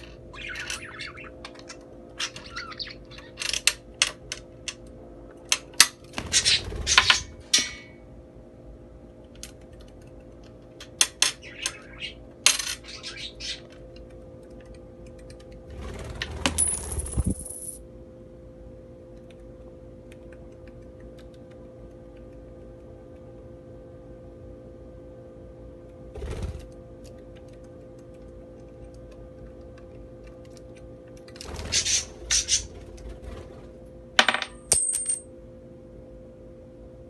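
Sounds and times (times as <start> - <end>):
coins clinking: 16.6 - 17.8, 34.2 - 35.2.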